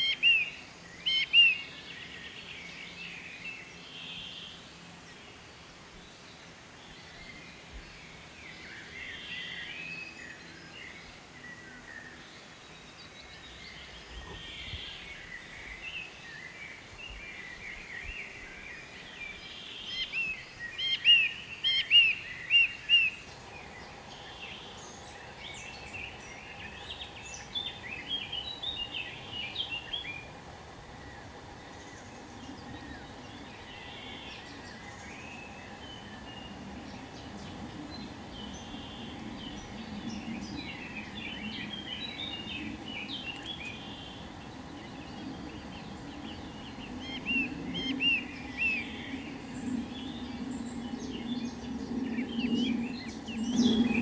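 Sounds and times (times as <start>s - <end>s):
birds chirping: 0.0s - 5.2s, 18.8s - 54.0s
outdoor background noise: 0.0s - 54.0s
faint steady hum: 23.1s - 54.0s.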